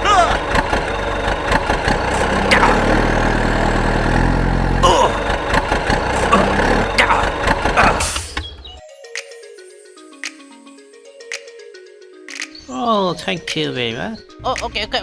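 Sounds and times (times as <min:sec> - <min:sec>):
clicks: 0:12.3 - 0:12.6.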